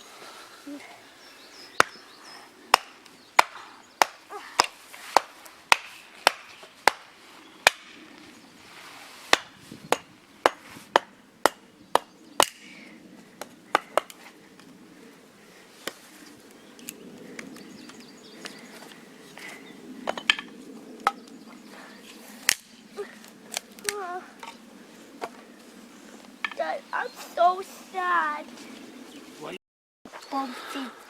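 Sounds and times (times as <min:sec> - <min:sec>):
wood being chopped: 0:01.8 - 0:02.0, 0:02.7 - 0:08.0, 0:09.3 - 0:12.6, 0:13.4 - 0:14.2, 0:22.5 - 0:22.7.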